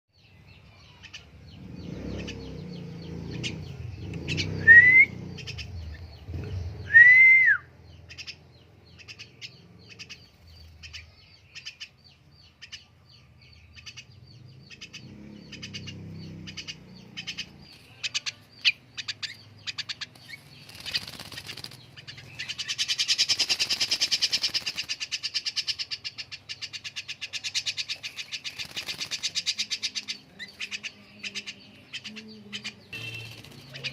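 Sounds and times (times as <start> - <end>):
bird rising whistles: 4.5 - 5.4, 6.8 - 7.7
wings fluttering in water: 20.1 - 25.4, 28.0 - 29.7, 33.0 - 33.9
bird short sharp chirps: 32.0 - 33.9.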